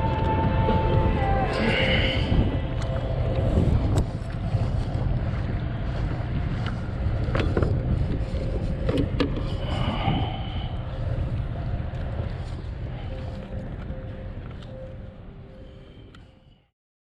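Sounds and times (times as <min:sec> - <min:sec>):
wind buffeting microphone: 0:00.0 - 0:16.2.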